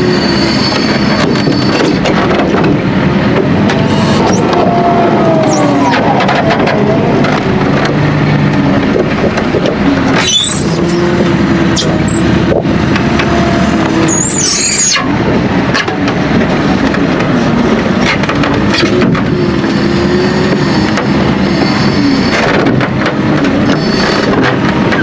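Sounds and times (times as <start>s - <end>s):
high squeals: 0.0s - 2.0s, 3.9s - 6.8s, 10.2s - 12.4s, 13.6s - 15.2s
tractor machinery running: 0.0s - 25.0s.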